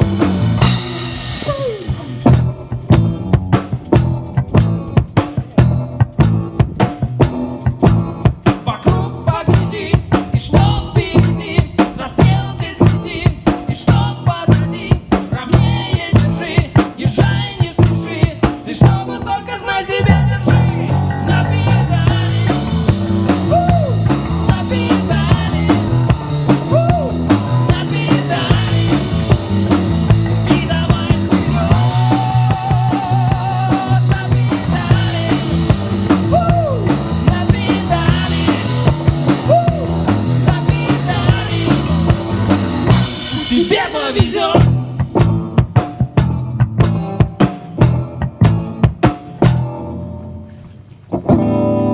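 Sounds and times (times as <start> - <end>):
drums: 0.0 - 51.9
live rock band: 0.0 - 51.9
lead electric guitar bending notes: 19.3 - 44.0.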